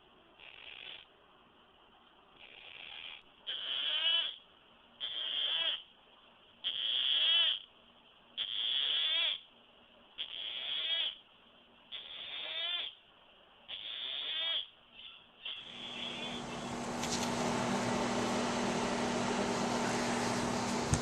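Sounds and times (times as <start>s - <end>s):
parrot harsh raspy calls: 0.4s - 1.1s, 2.4s - 4.4s, 5.0s - 5.9s, 6.6s - 7.7s, 8.4s - 9.5s, 10.2s - 11.2s, 11.9s - 13.0s, 13.7s - 16.1s.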